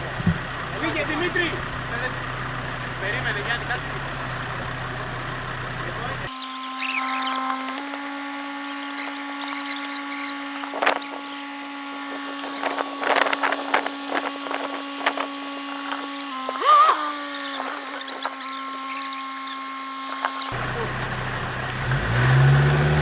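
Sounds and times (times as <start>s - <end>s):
high-pitched motor whine: 6.3s - 20.7s.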